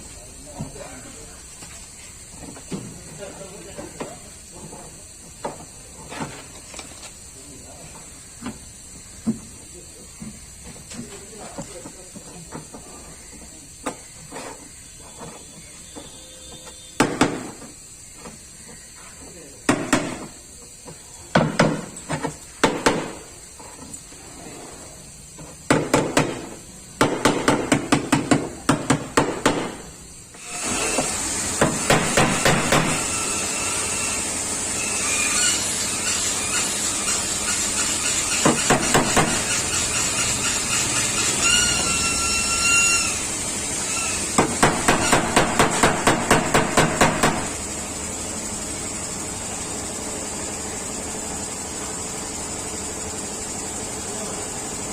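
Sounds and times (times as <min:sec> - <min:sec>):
steady mechanical noise: 0:00.0 - 0:54.9
brief squeal: 0:15.0 - 0:17.0, 0:39.5 - 0:43.2.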